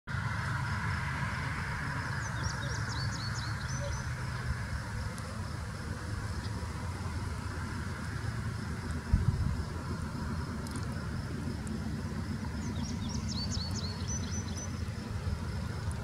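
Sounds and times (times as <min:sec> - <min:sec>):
distant diesel train rumble: 0:00.1 - 0:16.0
bird chirping: 0:02.2 - 0:04.1, 0:12.5 - 0:14.9.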